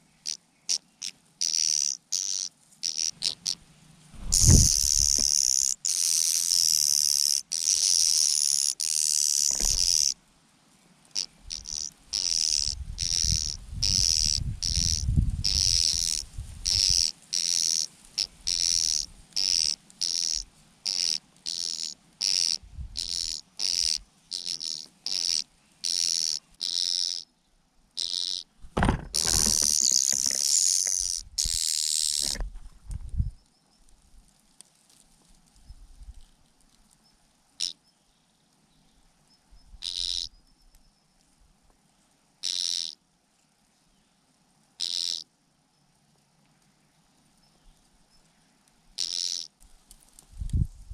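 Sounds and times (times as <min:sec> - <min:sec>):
birds begging calls: 0:00.0 - 0:03.6, 0:04.2 - 0:10.2, 0:11.2 - 0:27.3, 0:28.0 - 0:32.5, 0:39.7 - 0:40.4, 0:49.0 - 0:49.5.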